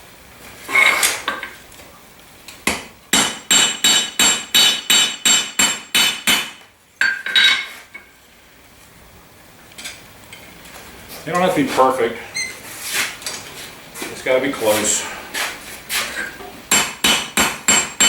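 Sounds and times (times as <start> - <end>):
hammer striking steel on anvil: 3.2 - 7.6, 16.7 - 18.0.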